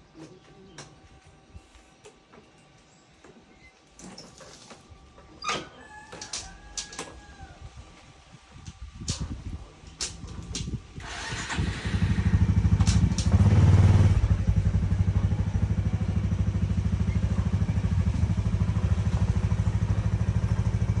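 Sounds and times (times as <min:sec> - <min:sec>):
motorcycle engine starting and idling: 0:09.0 - 0:21.0.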